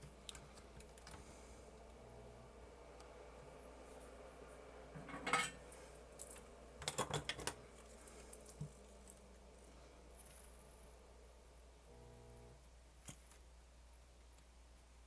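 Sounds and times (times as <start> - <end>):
low hum: 7.6 - 12.8.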